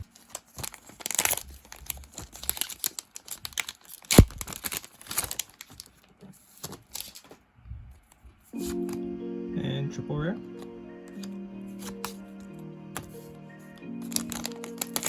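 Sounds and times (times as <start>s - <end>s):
foil wrapper tearing and crinkling: 0.0s - 7.3s, 14.0s - 15.0s.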